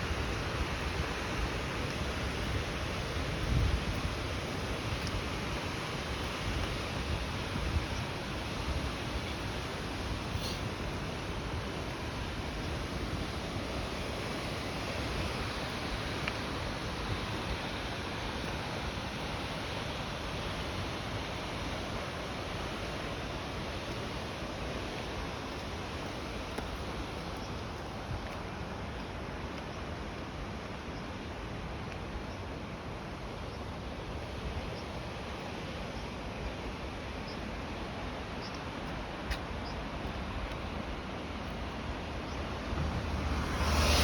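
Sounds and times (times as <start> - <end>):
wind rumbling on microphone: 0.0 - 17.7, 39.0 - 44.0
falling rain hiss: 0.0 - 44.0
rushing water: 0.0 - 44.0.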